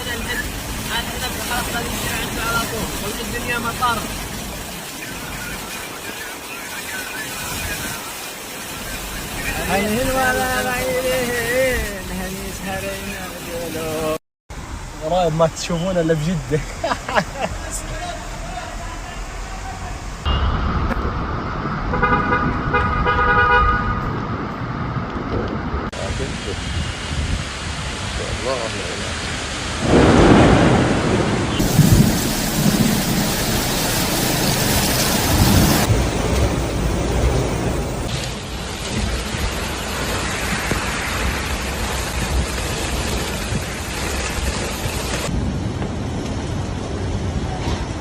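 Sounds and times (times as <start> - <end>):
rain: 0.0 - 48.0
traffic rumble: 0.0 - 48.0
car horn honks: 21.9 - 24.1.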